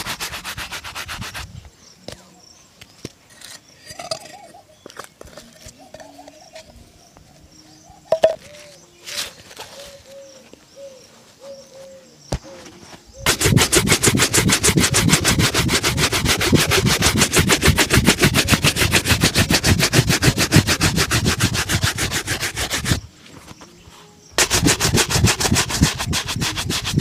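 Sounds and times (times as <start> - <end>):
shoe buffing strokes: 0.0 - 1.6, 13.2 - 23.1, 24.4 - 27.0.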